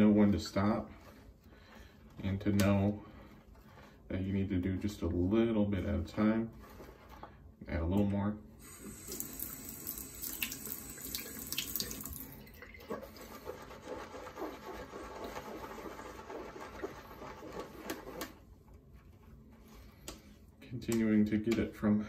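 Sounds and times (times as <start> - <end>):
water added to brush: 8.6 - 18.4
shaving brush whisking lather: 12.9 - 18.4.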